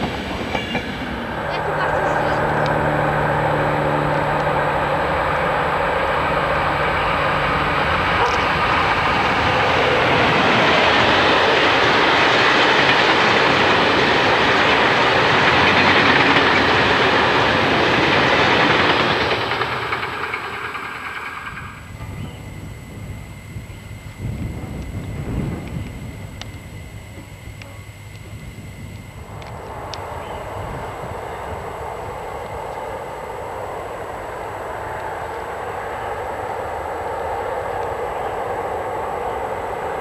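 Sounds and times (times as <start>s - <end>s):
freight wagons rolling on rails: 0.0s - 22.4s
electric locomotive humming: 0.0s - 40.0s.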